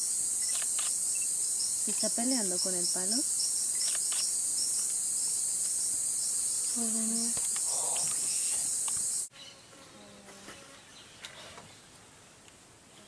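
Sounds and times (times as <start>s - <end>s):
high-pitched insect chorus: 0.0s - 9.3s
quiet forest ambience: 0.0s - 13.0s.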